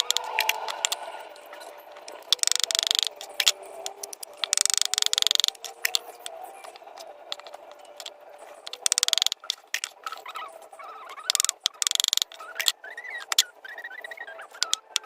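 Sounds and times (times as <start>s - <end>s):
birds pecking clicks: 0.0s - 1.1s, 1.9s - 15.0s
soft bird calls: 8.7s - 15.0s.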